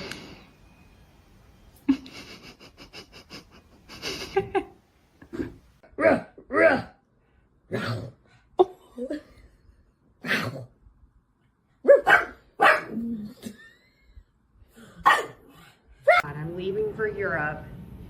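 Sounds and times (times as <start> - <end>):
dog barking: 11.8 - 13.0, 15.0 - 15.4, 16.0 - 16.2.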